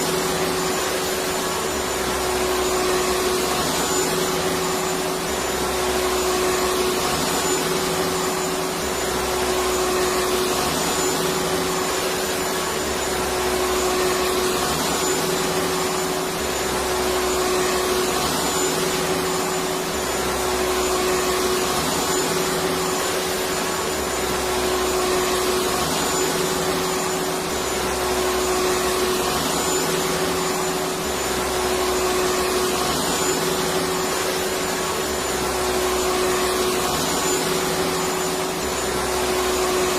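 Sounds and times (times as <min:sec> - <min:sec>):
vacuum cleaner motor running: 0:00.0 - 0:39.9.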